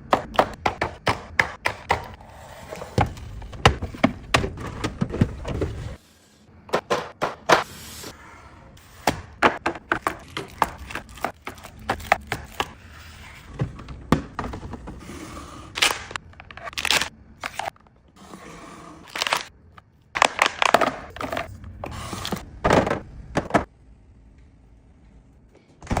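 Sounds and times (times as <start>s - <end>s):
groceries clunking and tapping: 0.0s - 6.0s, 6.7s - 7.7s, 9.0s - 12.8s, 13.5s - 15.0s, 20.2s - 23.7s.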